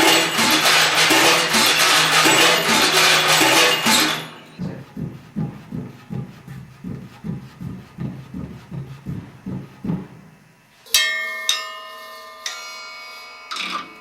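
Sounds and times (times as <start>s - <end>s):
taps on clay drum: 0.0s - 10.4s
dense ceramic percussion: 0.0s - 10.5s.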